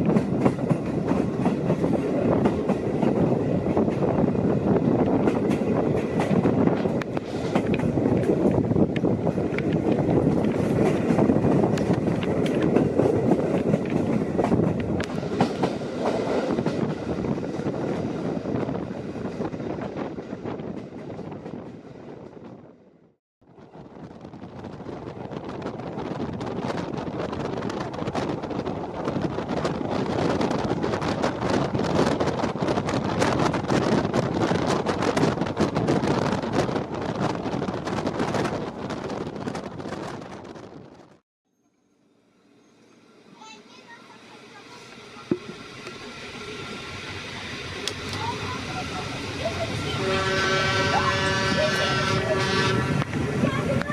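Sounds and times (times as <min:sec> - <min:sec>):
wheels clicking over rail joints: 0:00.0 - 0:18.1
wind on microphone: 0:00.0 - 0:22.8, 0:23.5 - 0:41.2, 0:46.6 - 0:53.9
train rumbling on track: 0:00.0 - 0:41.2, 0:42.0 - 0:53.9.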